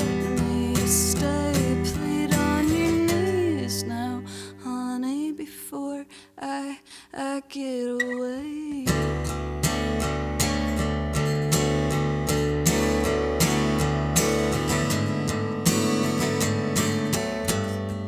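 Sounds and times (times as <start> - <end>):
guitar strumming chords: 0.0 - 4.6, 9.0 - 18.0.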